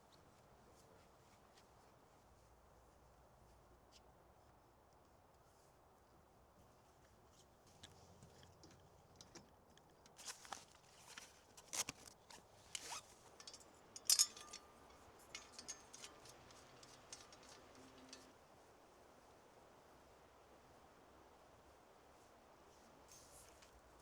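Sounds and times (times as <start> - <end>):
objects being handled: 10.2 - 18.3.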